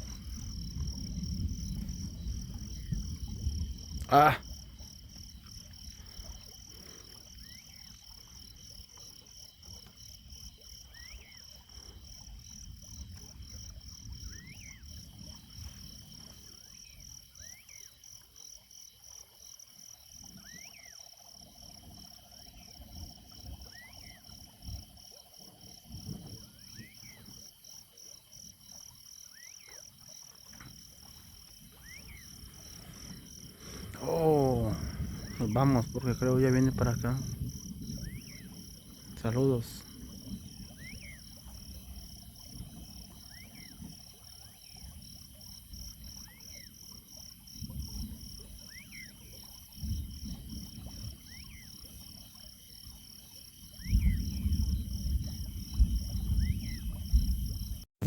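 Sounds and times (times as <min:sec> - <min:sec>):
insects trilling: 0:00.0 - 0:57.8
frog chirping: 0:31.8 - 0:36.3, 0:36.9 - 0:39.4.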